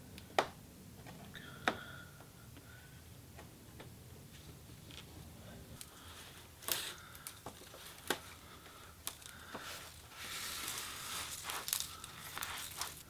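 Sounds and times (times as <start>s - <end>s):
plastic rustle: 6.0s - 13.0s.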